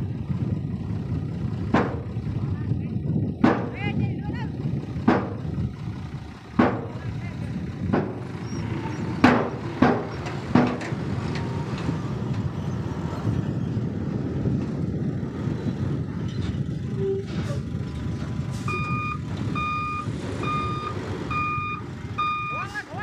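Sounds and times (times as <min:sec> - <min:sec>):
diesel machinery running: 0:00.0 - 0:23.0
sharp bangs: 0:09.2 - 0:11.0
reversing alarm beeping: 0:18.7 - 0:22.7.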